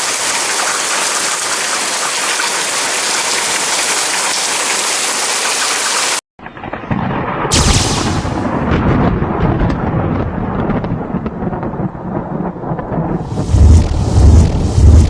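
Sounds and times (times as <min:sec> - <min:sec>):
heavy rain pouring: 0:00.0 - 0:06.2, 0:07.5 - 0:09.1, 0:13.2 - 0:15.0
thunder crack: 0:06.4 - 0:15.0
thunder rumbling: 0:06.4 - 0:15.0.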